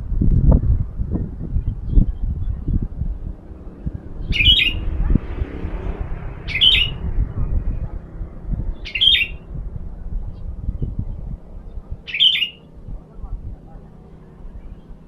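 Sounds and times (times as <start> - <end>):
wind rumble on microphone: 0.0 - 15.0
bird giving sharp calls: 3.6 - 7.3, 8.7 - 9.5, 11.9 - 12.9.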